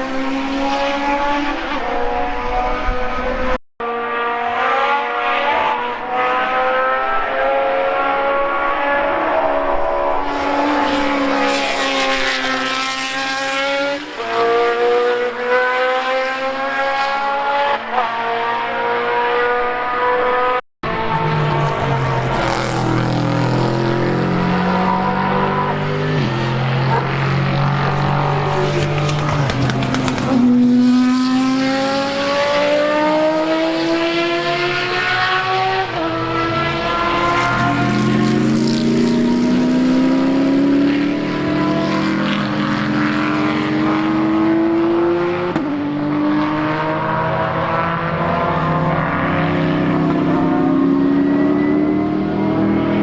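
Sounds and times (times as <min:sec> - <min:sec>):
racing car engine accelerating: 0:00.0 - 0:53.0
engine pops: 0:28.6 - 0:30.6.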